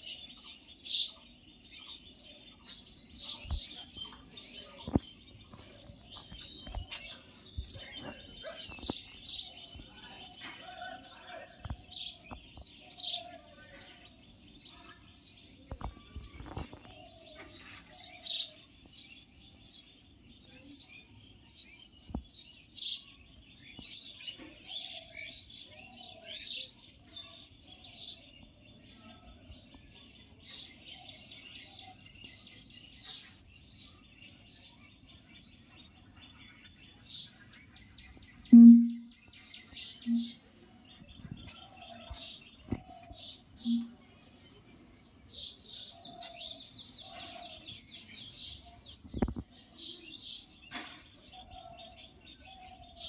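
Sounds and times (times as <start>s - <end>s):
birds chirping: 0.0s - 53.0s
birds twittering: 0.0s - 53.0s
short low-pitched tone: 38.5s - 39.2s, 40.1s - 40.4s, 43.7s - 43.9s.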